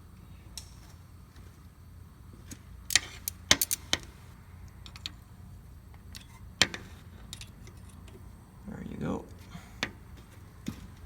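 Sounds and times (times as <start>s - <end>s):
wrench clicking on bolts: 2.9s - 4.1s.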